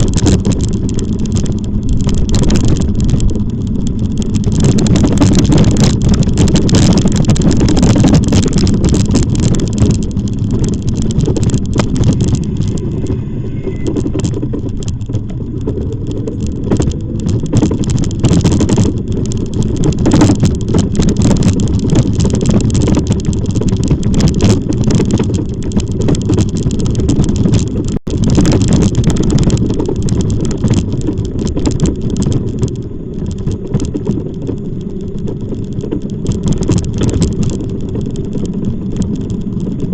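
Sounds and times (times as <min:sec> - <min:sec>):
microphone crackles: 0:00.0 - 0:39.9
wind buffeting microphone: 0:00.0 - 0:39.9.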